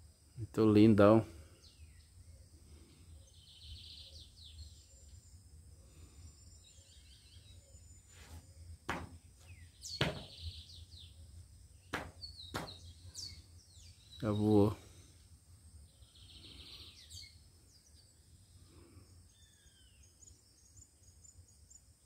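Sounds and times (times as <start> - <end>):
birds chirping: 1.0 - 15.1, 15.9 - 21.8
sharp knocks: 8.9 - 9.2, 10.0 - 10.4, 11.9 - 12.9.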